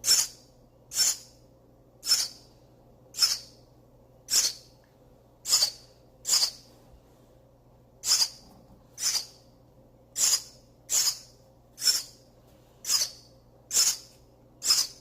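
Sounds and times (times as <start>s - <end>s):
baby bird begging calls: 0.0s - 1.4s, 2.0s - 2.5s, 3.1s - 3.6s, 4.3s - 4.7s, 5.4s - 6.7s, 8.0s - 8.4s, 9.0s - 9.5s, 10.1s - 12.2s, 12.8s - 15.0s.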